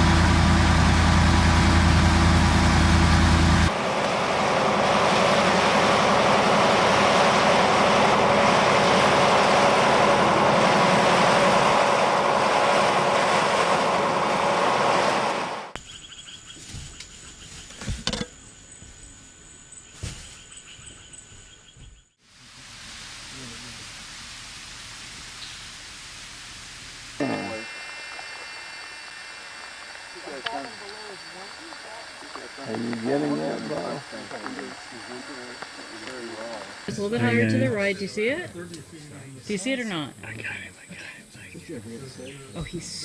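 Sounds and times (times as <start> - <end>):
motor running: 0.0 - 4.1, 24.1 - 38.6.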